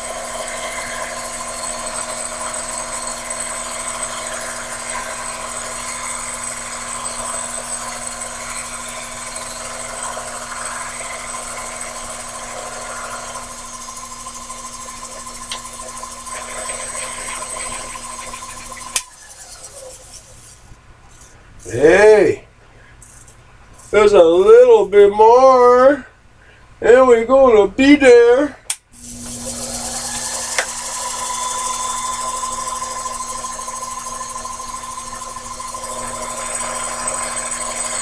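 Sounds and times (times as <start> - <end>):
lathe motor hum and whine: 0.0 - 20.6, 29.0 - 38.0
lathe tool cutting metal: 0.0 - 20.6, 29.0 - 38.0.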